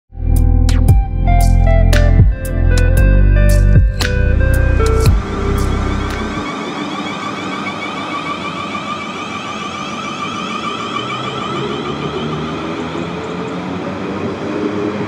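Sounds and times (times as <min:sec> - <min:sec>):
traction motor whine: 0:03.7 - 0:15.0.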